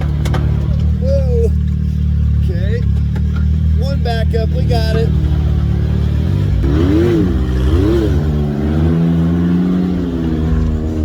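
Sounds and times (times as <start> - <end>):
engine revving under load: 3.4 - 11.0.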